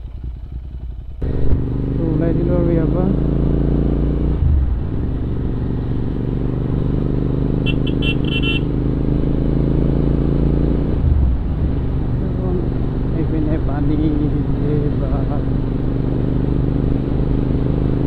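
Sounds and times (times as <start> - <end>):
motorcycle engine running: 0.0 - 18.0
horn toots: 7.6 - 8.7.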